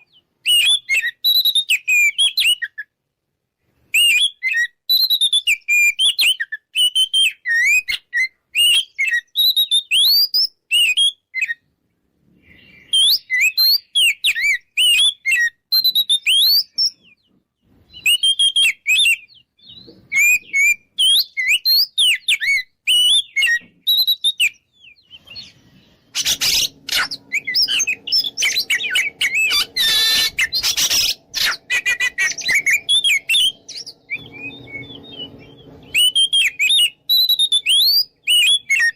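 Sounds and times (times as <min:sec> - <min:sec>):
bird singing whistled phrases: 0:00.0 - 0:02.9, 0:03.9 - 0:11.6, 0:12.5 - 0:17.2, 0:17.9 - 0:38.9
low steady hum: 0:25.6 - 0:37.2.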